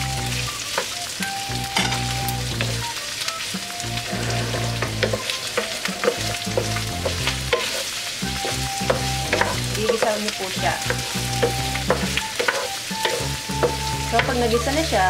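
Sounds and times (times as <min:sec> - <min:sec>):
meat sizzling in oil: 0:00.0 - 0:15.0
spatula scraping pan: 0:04.0 - 0:15.0.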